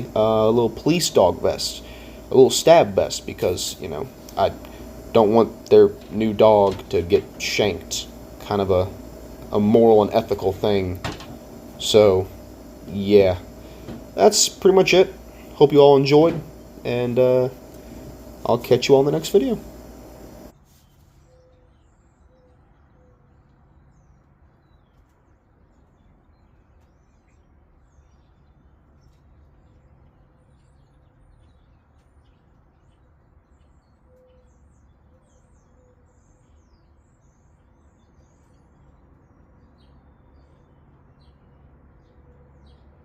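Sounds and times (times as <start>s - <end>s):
steady low hum: 0.0s - 20.6s
faint birds chirping: 0.0s - 43.0s.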